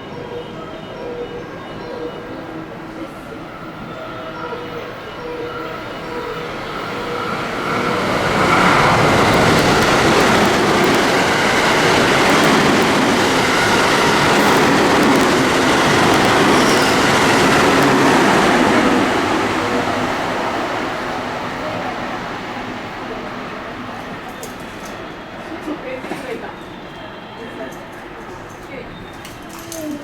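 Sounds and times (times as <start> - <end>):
train passing at speed: 0.0 - 30.0.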